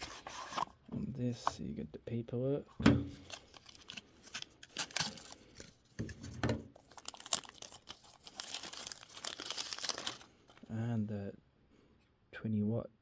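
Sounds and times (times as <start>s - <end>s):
packaging rustling and tearing: 0.0s - 0.8s, 3.0s - 10.7s.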